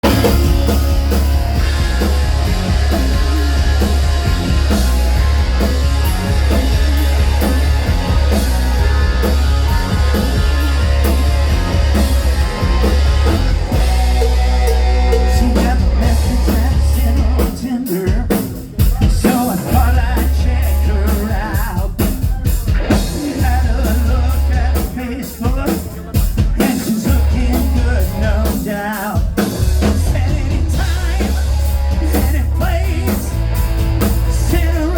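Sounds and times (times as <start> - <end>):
live rock band playing: 0.0 - 34.9
person singing: 13.7 - 33.4, 34.3 - 34.9.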